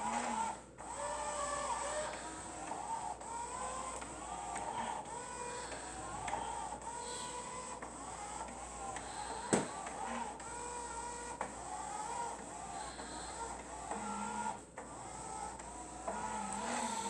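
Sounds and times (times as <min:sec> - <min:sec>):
robot mop motor whirring: 0:15.3 - 0:17.0.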